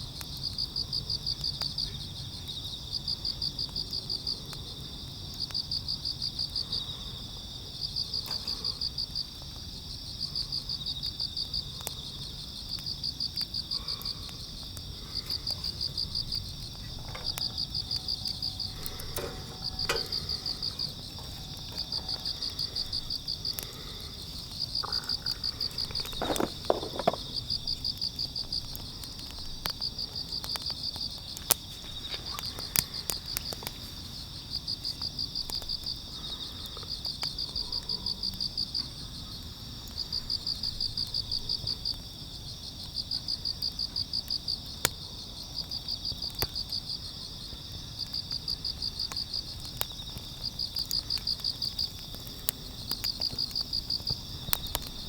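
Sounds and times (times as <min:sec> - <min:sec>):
crickets chirping: 0:00.0 - 0:55.0
insects ringing: 0:11.2 - 0:37.6, 0:48.2 - 0:55.0
sharp clicks: 0:16.7 - 0:22.9.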